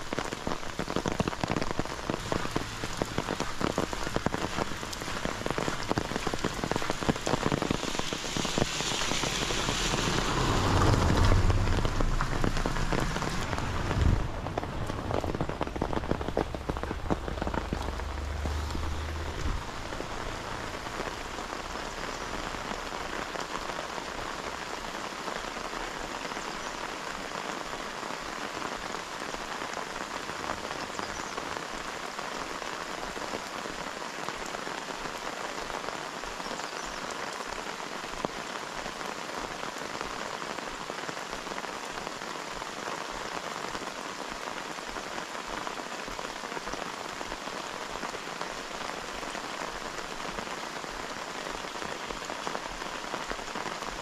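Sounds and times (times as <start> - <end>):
raindrops ticking: 0.0 - 54.0
steady rain falling: 0.0 - 54.0
low rumble: 9.0 - 20.9.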